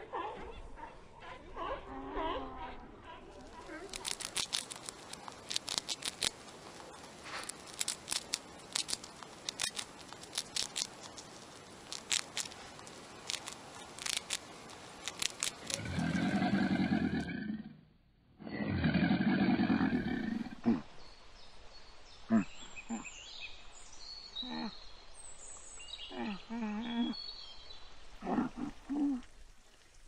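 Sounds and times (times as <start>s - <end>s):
rat nibbling crisp petals: 3.3s - 16.5s
crocodile growling call: 15.6s - 17.8s, 18.4s - 20.9s.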